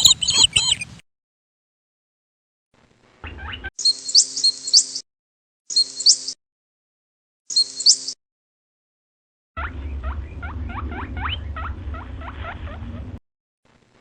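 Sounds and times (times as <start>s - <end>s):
bird chirping: 0.0s - 1.0s, 3.3s - 5.0s, 5.7s - 6.4s, 7.5s - 8.2s
low hum: 9.6s - 14.0s.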